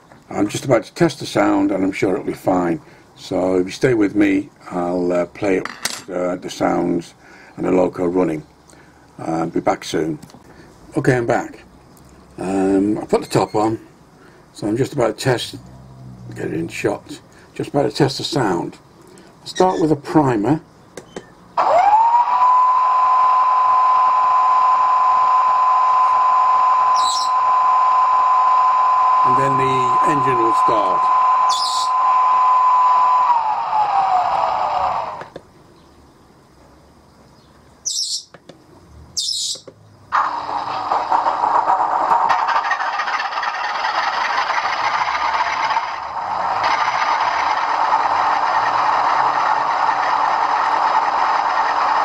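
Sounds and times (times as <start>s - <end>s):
diesel engine through small speakers: 14.6s - 20.6s, 21.2s - 35.4s, 40.0s - 52.0s
steady high whine: 21.6s - 35.5s, 40.1s - 52.0s.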